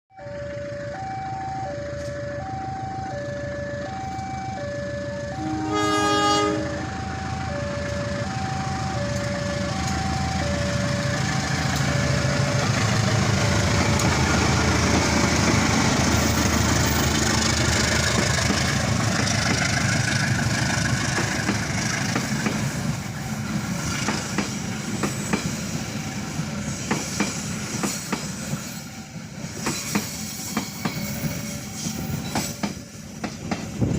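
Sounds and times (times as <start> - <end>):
two-tone warning signal: 0.1 - 12.8
train rumble: 0.4 - 33.9
train horn blast: 5.3 - 6.9.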